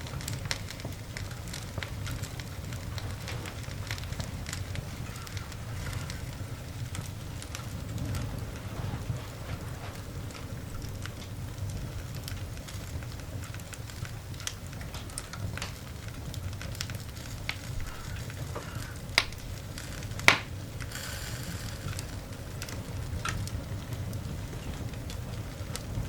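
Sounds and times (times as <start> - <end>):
coal fire crackling and popping: 0.0 - 26.0
short hiss: 20.8 - 22.3.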